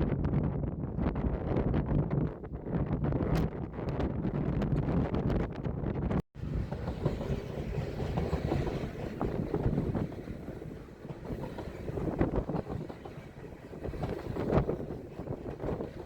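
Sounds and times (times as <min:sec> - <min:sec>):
wind buffeting microphone: 0:00.0 - 0:16.0
train rumbling by: 0:06.4 - 0:16.0
wheels clicking on rail: 0:06.4 - 0:16.0.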